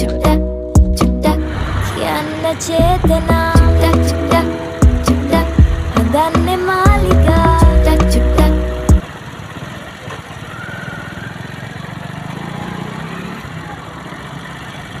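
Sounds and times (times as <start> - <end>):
song: 0.0 - 9.0.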